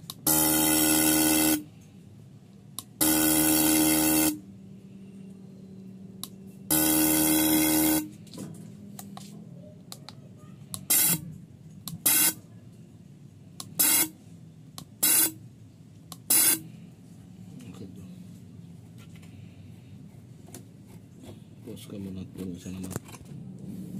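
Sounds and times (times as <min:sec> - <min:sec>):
car horn blasts and toots: 0:03.0 - 0:04.4, 0:06.7 - 0:08.1.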